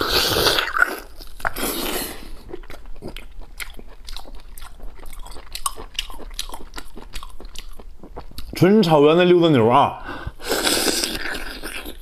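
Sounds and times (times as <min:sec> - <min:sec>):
wet chewing: 0:00.0 - 0:08.6.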